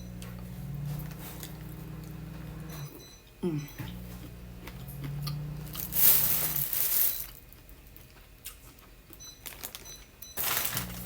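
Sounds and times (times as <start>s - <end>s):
food wrapping crinkling rustle: 5.8s - 8.8s, 9.4s - 11.0s.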